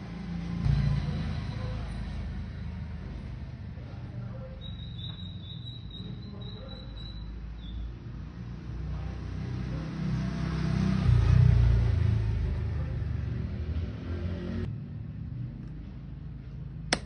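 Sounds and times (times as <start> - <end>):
motorcycle engine running: 0.0 - 3.9.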